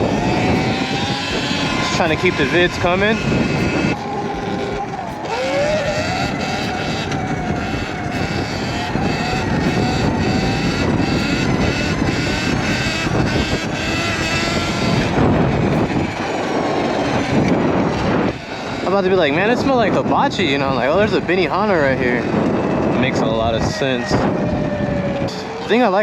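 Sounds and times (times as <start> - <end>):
electric dirt bike motor whining: 0.0 - 26.0
wind and road noise: 0.0 - 26.0.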